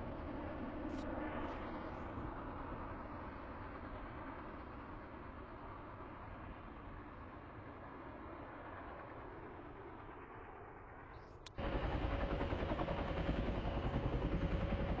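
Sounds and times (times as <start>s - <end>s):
military aircraft engine whine: 0.0s - 15.0s.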